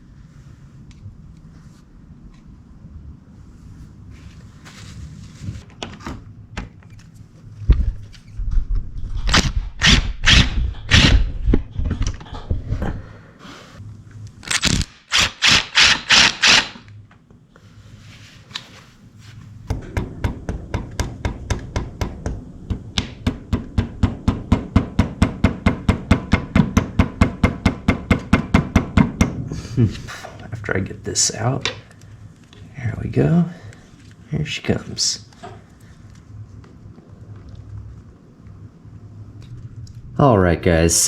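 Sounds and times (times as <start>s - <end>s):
low hum: 7.3s - 14.9s, 19.0s - 34.3s.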